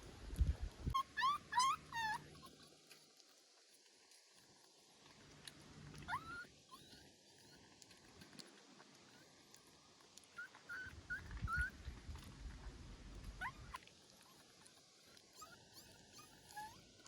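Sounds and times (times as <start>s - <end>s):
puppy whimpering: 0.9s - 2.7s, 5.9s - 8.0s, 10.3s - 12.3s, 13.2s - 17.0s.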